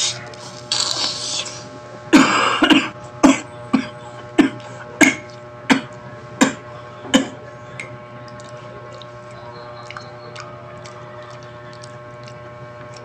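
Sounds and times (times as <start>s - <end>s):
wet mouth smacks while chewing: 9.8s - 13.0s.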